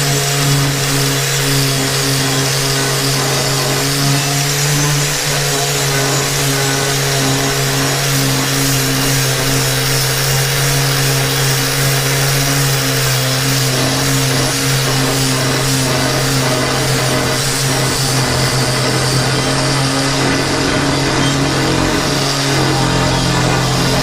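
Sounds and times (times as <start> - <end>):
wire brush grinder scouring metal: 0.0 - 24.0.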